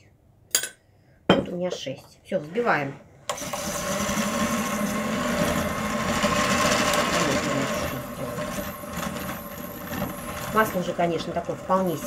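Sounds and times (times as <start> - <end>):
electric mixer running: 2.4 - 12.0.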